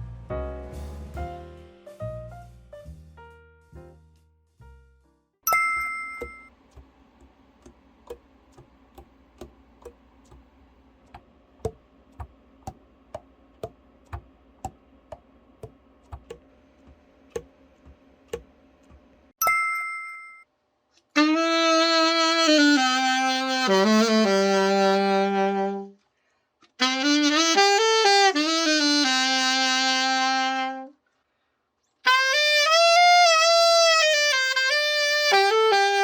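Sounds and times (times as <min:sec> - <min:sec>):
bright bell-like ding: 0:05.5 - 0:06.5, 0:19.4 - 0:20.4
alto saxophone playing: 0:21.2 - 0:26.0, 0:26.8 - 0:31.0, 0:32.0 - 0:36.0.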